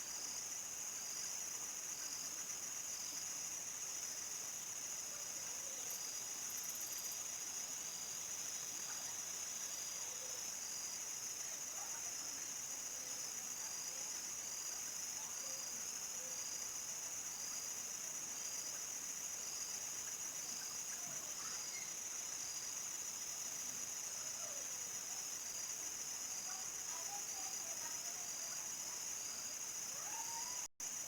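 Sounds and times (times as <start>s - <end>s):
crickets chirping: 0.0s - 31.0s
faint animal calls: 29.9s - 30.7s.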